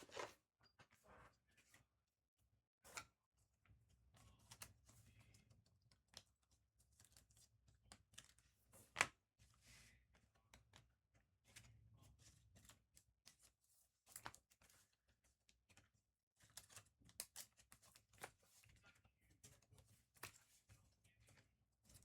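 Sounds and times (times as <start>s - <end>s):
cards being shuffled through: 0.0s - 0.4s.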